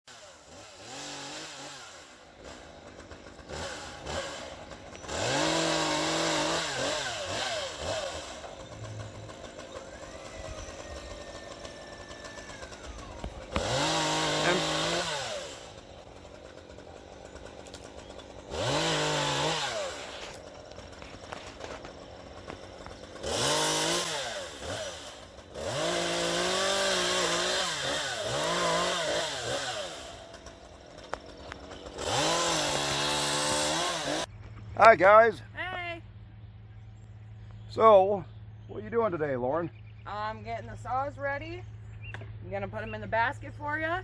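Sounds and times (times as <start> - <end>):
chainsaw revving: 0.1 - 34.3.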